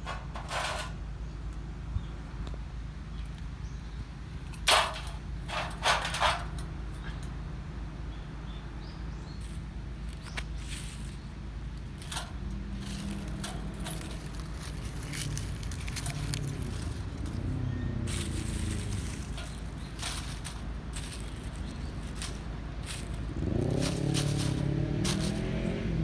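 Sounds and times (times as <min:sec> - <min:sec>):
low rumbling hum: 0:03.6 - 0:26.0
campfire crackling and popping: 0:13.1 - 0:17.2.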